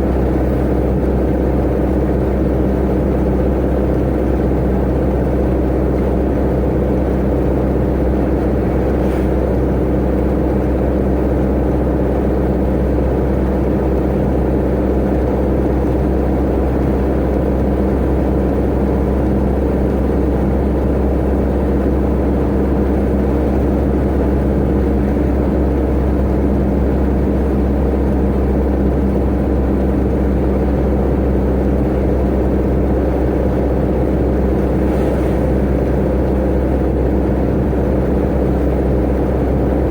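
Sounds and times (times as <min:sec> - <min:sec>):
truck engine droning: 0:00.0 - 0:39.9
road noise: 0:05.2 - 0:12.4, 0:27.9 - 0:39.9.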